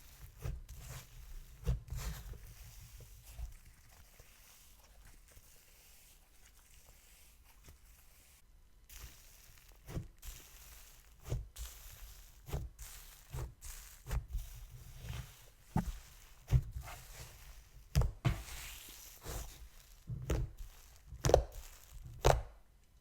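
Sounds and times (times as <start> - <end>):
slime squelching and popping: 15.1 - 22.6.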